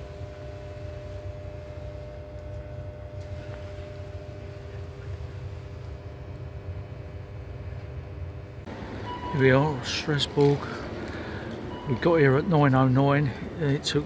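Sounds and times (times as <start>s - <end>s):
electrical hum: 0.0s - 14.0s
train carriage rumble: 8.7s - 14.0s.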